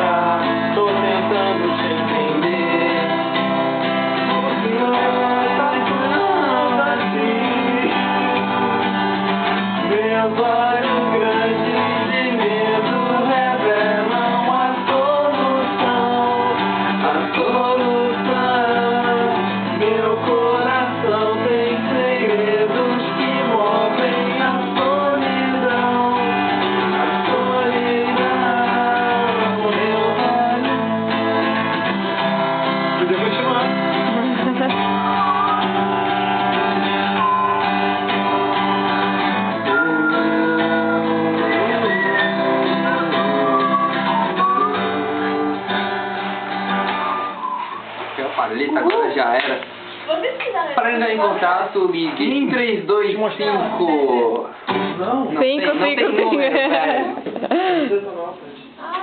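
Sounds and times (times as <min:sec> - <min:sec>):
people singing: 0:00.0 - 0:31.7, 0:33.0 - 0:47.8
guitar accompaniment: 0:00.0 - 0:59.0.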